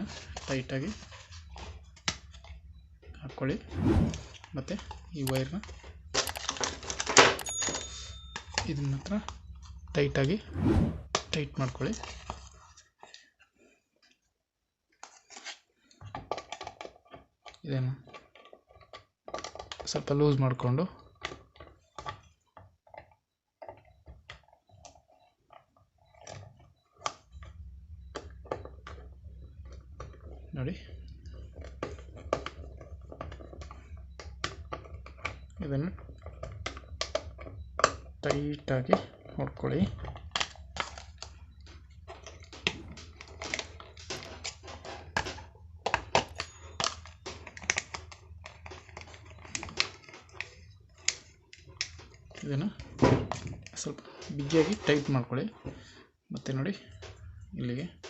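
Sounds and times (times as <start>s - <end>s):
steady low hum: 0.0s - 12.7s, 27.2s - 52.9s, 56.8s - 58.0s.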